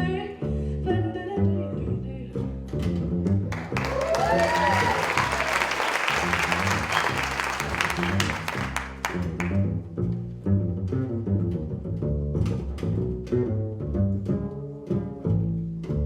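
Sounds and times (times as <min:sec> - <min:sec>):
upright double bass jazz line: 0:00.0 - 0:16.0
audience applause with whoops: 0:03.5 - 0:09.6.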